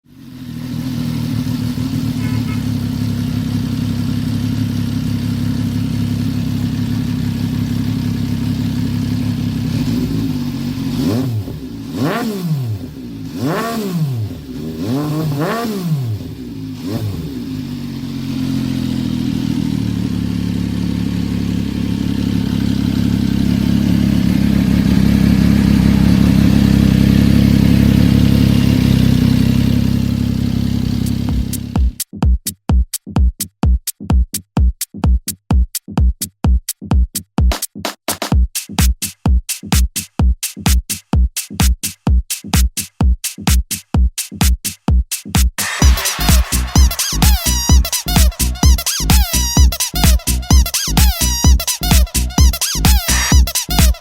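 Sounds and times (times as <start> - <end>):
motorcycle engine revving: 0.0 - 32.0, 45.6 - 54.0
motorcycle engine idling: 0.1 - 13.6, 14.2 - 32.0, 45.8 - 54.0.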